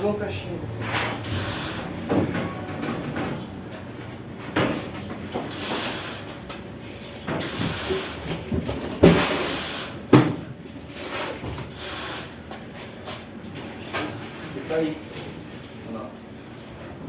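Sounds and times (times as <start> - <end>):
heavy machine scraping across floor: 0.0 - 10.0.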